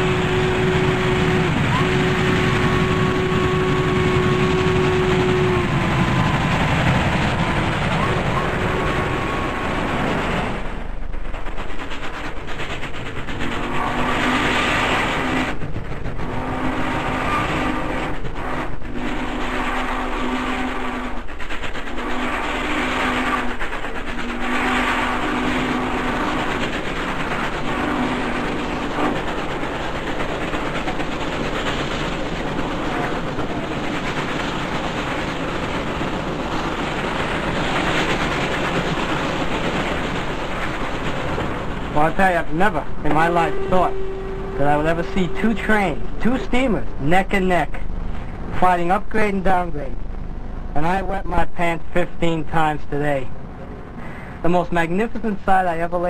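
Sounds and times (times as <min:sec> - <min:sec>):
steam locomotive running: 0:00.0 - 0:56.0.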